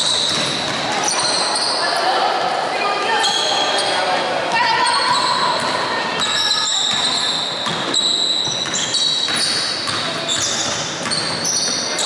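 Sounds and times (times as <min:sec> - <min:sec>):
basketball bouncing: 0:00.0 - 0:01.0, 0:05.1 - 0:12.0
sneakers squeaking on hardwood: 0:00.0 - 0:01.9, 0:04.6 - 0:12.0
voices echoing: 0:00.0 - 0:12.0.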